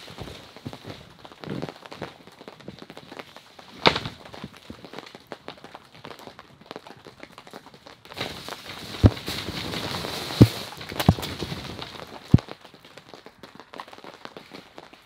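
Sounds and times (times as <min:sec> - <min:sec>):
heavy thumps of falling snow: 0:00.0 - 0:06.4, 0:08.1 - 0:13.1
snow sliding down plastic sheeting: 0:00.0 - 0:15.0.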